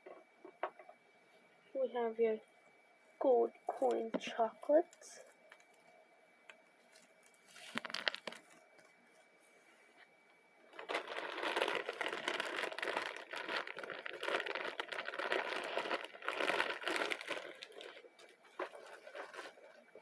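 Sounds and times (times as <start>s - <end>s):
foil wrappers crinkling: 6.8s - 9.0s, 10.7s - 20.0s.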